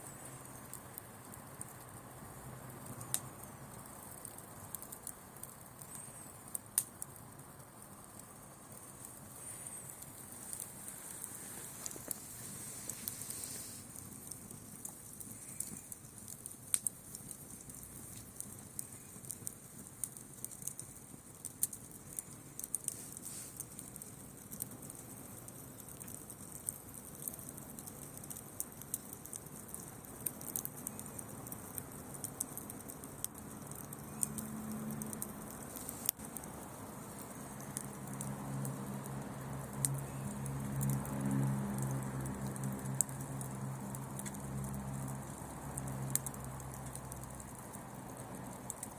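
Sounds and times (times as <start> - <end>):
wood bonfire crackling: 0.0 - 48.9.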